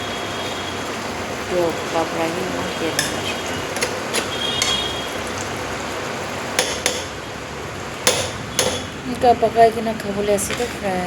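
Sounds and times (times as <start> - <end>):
curry sizzling in oil: 0.0 - 10.8
metal spoon scraping a pot: 3.0 - 5.1, 8.1 - 9.0.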